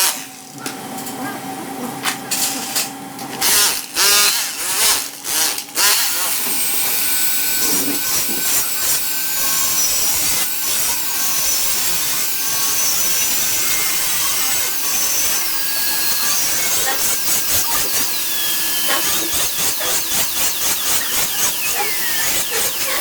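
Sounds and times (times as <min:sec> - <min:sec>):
metal tool rasping on steel pipe: 0:03.5 - 0:23.0
high whistling tones: 0:13.2 - 0:23.0.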